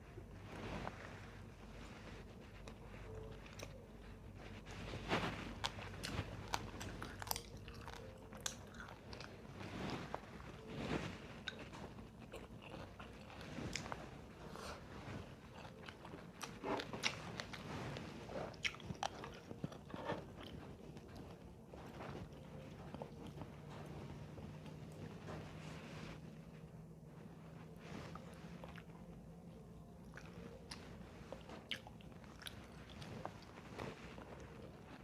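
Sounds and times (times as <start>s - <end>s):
person crunching and chewing: 5.5s - 10.6s, 11.4s - 23.5s, 30.0s - 35.0s.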